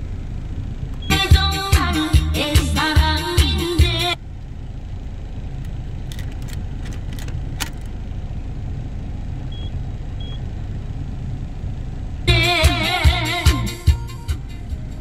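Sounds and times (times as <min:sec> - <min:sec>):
engine rumbling inside cab: 0:00.0 - 0:15.0.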